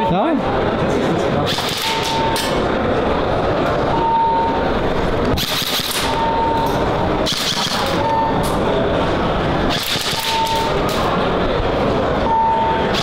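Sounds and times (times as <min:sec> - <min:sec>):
crowded hall din: 0:00.0 - 0:13.0
airsoft guns firing bursts: 0:05.4 - 0:06.1, 0:07.3 - 0:08.0.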